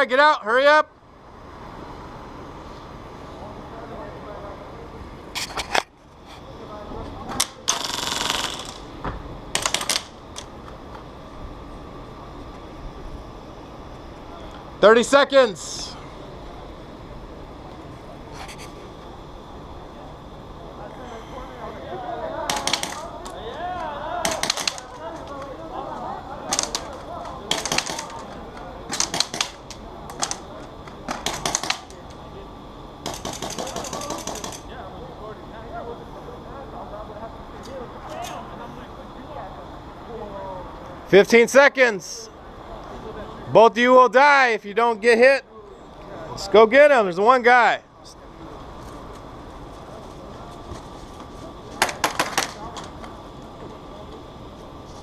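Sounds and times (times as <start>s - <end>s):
airsoft guns firing bursts: 7.7s - 8.8s, 22.5s - 23.1s, 24.2s - 25.0s, 27.5s - 28.3s, 28.9s - 30.4s, 31.1s - 31.9s, 33.0s - 34.7s, 51.8s - 52.6s.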